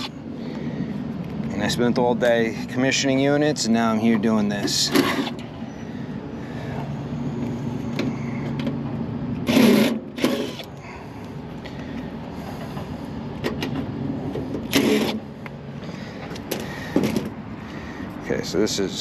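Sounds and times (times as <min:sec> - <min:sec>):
low machinery hum: 0:00.0 - 0:19.0
cordless driver removing screws: 0:09.4 - 0:10.7, 0:14.6 - 0:15.2.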